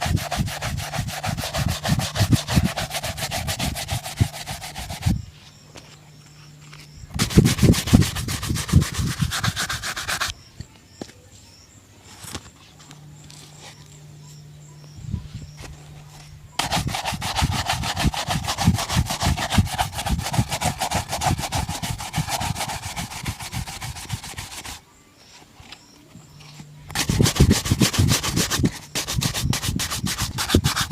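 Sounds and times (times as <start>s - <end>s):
brush strokes on shoe: 0.0s - 5.3s, 7.1s - 10.4s, 16.1s - 24.8s, 26.9s - 30.9s.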